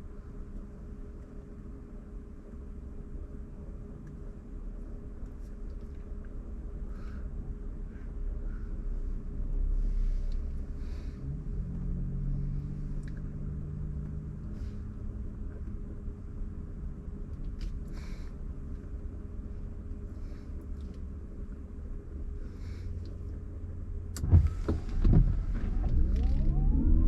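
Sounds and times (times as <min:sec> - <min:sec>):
car driving on wet road: 0:09.5 - 0:16.1, 0:23.7 - 0:27.0.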